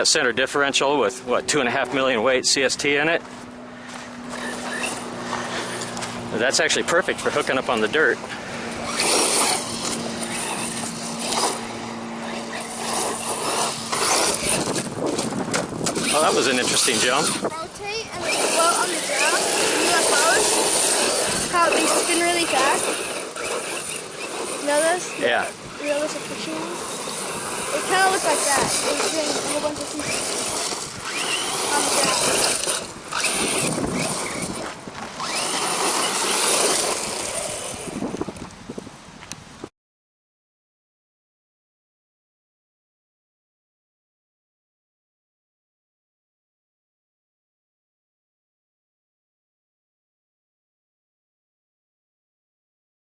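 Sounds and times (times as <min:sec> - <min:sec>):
electric toy truck motor whine: 0:03.9 - 0:06.3, 0:07.2 - 0:38.5.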